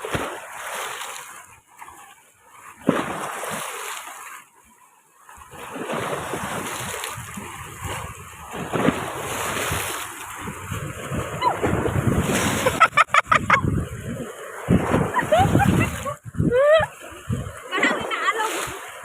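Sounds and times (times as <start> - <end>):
sea surf washing in: 5.6 - 19.0
wind on microphone: 6.3 - 17.6.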